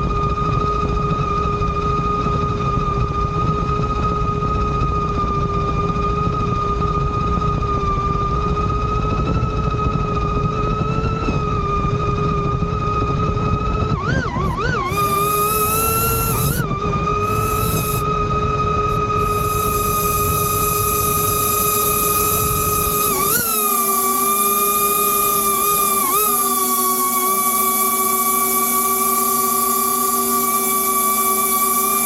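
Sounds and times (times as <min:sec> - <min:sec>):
drone motors whining: 0:12.4 - 0:32.0.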